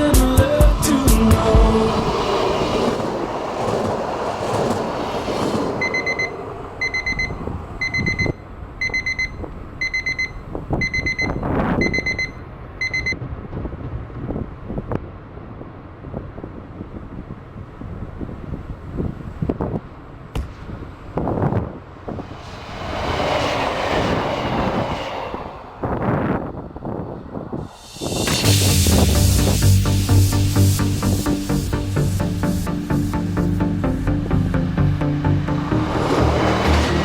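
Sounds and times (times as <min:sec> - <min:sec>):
rumbling background: 0:00.0 - 0:08.0, 0:20.3 - 0:37.0
electronic warning beeps: 0:05.8 - 0:13.2.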